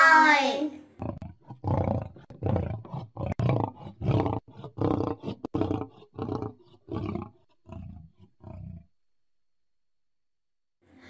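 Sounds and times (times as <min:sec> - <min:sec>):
lion roaring: 0:01.0 - 0:08.9.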